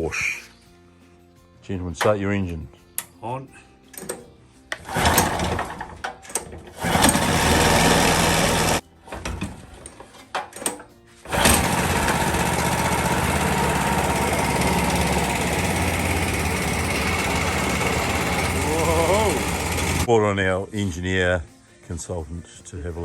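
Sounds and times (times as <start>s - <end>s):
engine pull-start coughs: 4.8s - 5.9s, 11.3s - 20.1s
boat motor engine running: 11.3s - 20.1s.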